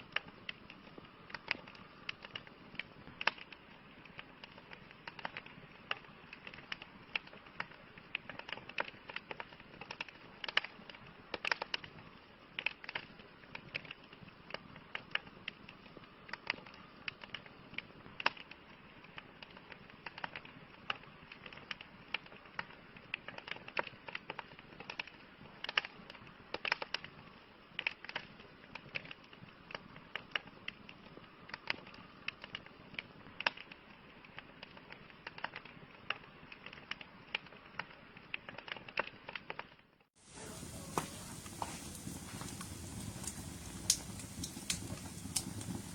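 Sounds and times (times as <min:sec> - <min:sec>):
wood fire crackling: 0:00.0 - 0:45.9
soft steady hiss: 0:40.2 - 0:45.9.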